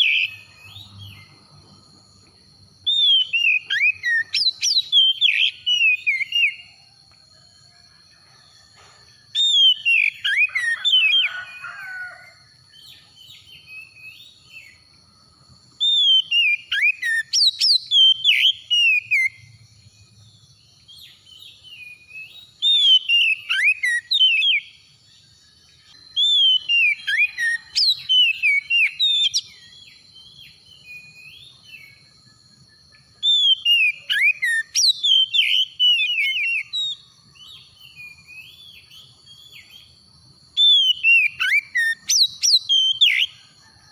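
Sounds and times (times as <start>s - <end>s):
bird singing whistled phrases: 0.0s - 1.3s, 2.8s - 6.8s, 9.3s - 11.4s, 12.8s - 14.8s, 15.8s - 19.4s, 20.9s - 24.8s, 26.0s - 32.1s, 33.2s - 39.9s, 40.6s - 43.4s.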